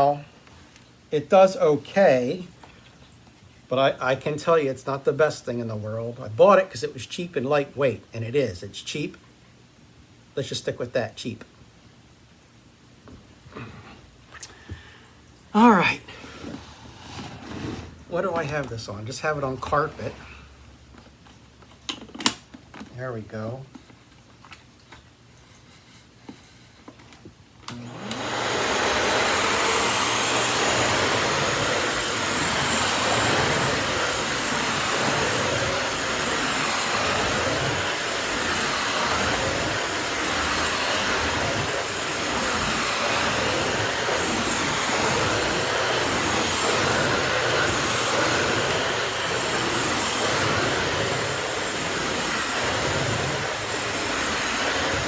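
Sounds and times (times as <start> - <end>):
stick vacuum running on carpet: 16.3 - 20.4, 27.7 - 55.0.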